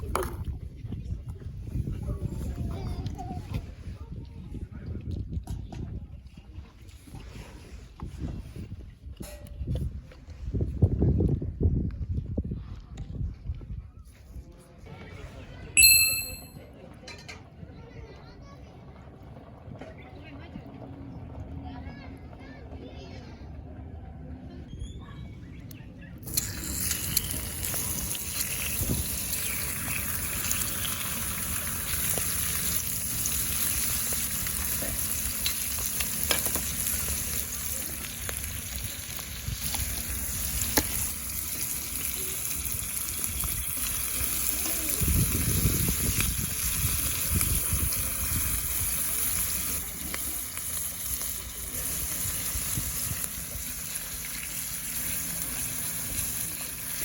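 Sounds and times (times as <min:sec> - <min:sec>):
food sizzling in a pan: 0:26.3 - 0:57.0.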